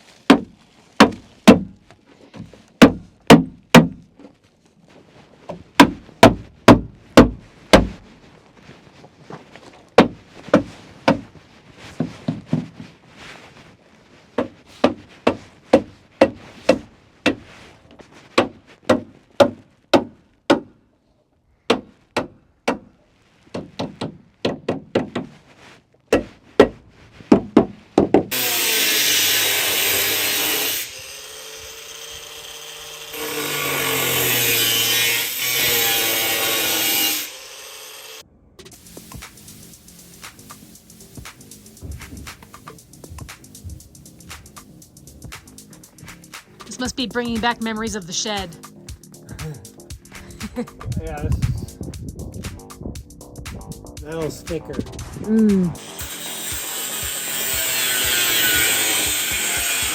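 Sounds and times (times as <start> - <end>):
hammer driving nails into wood: 0.3 - 1.7, 2.8 - 4.0
power saw cutting: 28.3 - 38.2, 55.8 - 59.9.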